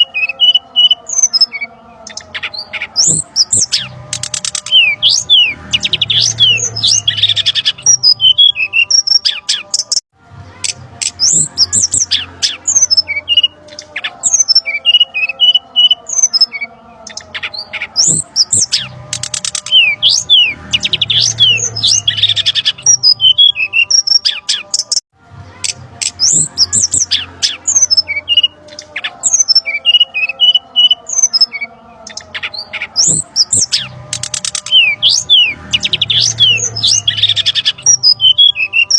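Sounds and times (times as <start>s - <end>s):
bird chirps and whistles: 26.0s - 38.9s.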